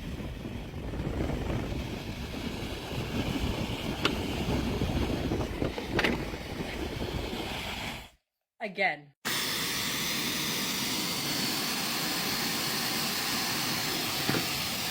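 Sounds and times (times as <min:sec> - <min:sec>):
hair dryer blowing air: 0:00.0 - 0:08.1, 0:09.2 - 0:14.9.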